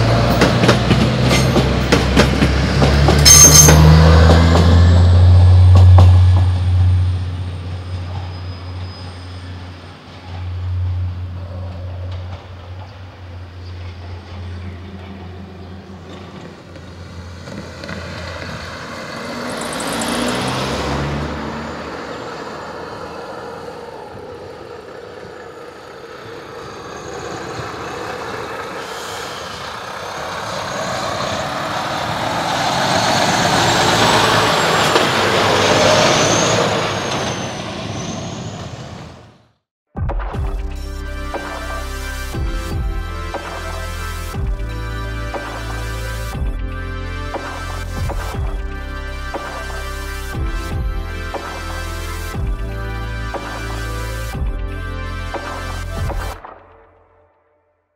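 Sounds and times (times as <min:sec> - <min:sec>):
engine running low: 0:00.0 - 0:39.5, 0:40.4 - 0:56.6
vehicles driving past: 0:00.0 - 0:39.5.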